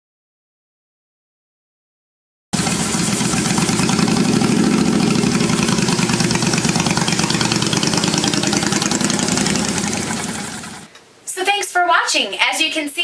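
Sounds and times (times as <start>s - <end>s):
motorcycle engine running: 2.6s - 10.9s.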